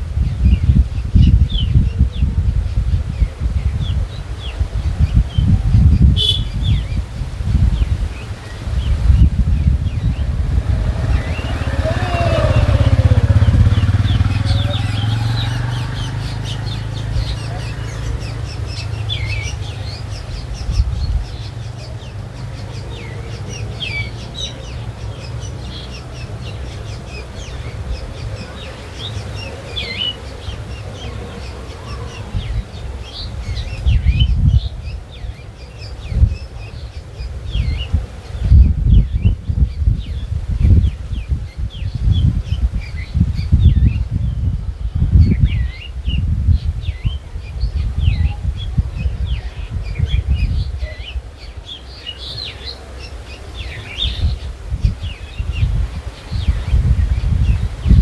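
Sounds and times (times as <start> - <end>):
small birds chirping: 0.0 - 58.0
wind buffeting microphone: 0.0 - 58.0
vehicle engine rumbling past: 5.1 - 42.5.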